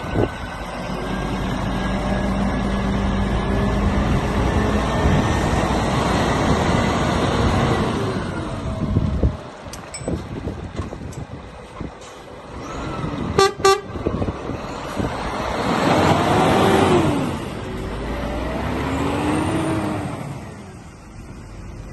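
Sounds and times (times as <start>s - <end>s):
wind noise: 0.0s - 17.9s
traffic: 0.0s - 21.9s
vehicle horn toots: 13.4s - 14.0s
vehicle passing: 14.4s - 21.1s.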